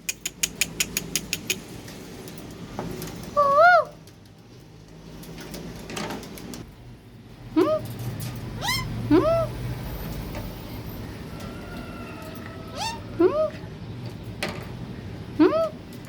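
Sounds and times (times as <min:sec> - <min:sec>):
parrot calls: 0:08.6 - 0:09.6, 0:12.6 - 0:13.6.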